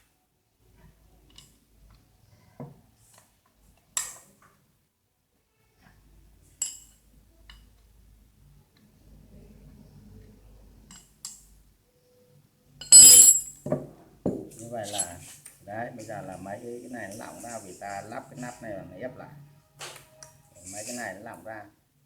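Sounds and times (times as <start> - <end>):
metal parts clinking and knocking: 12.9 - 13.5.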